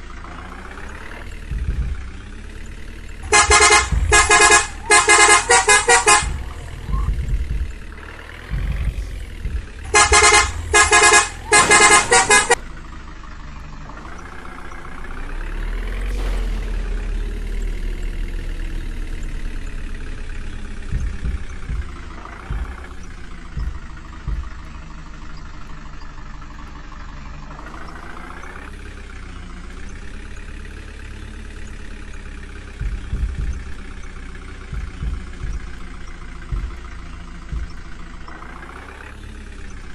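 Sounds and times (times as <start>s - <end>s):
backhoe diesel engine revving: 0.0s - 39.9s
vehicle horn honks: 2.1s - 8.5s, 9.4s - 12.7s.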